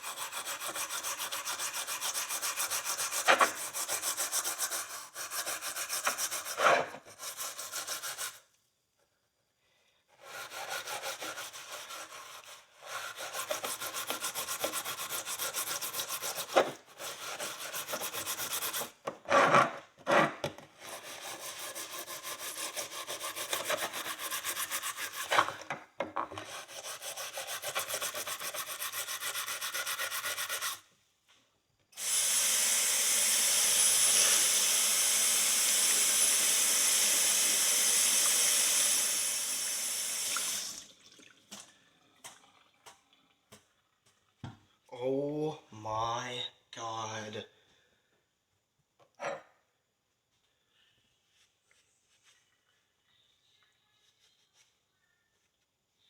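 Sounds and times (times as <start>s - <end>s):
steel wool scrubbing metal: 0.0s - 8.3s, 20.8s - 25.4s, 26.5s - 30.8s.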